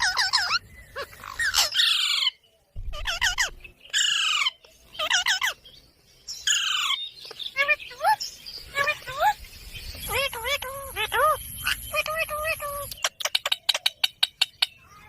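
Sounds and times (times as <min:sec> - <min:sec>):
parakeet squawking: 0:00.0 - 0:02.3, 0:02.9 - 0:05.6, 0:06.4 - 0:07.0, 0:10.0 - 0:14.7.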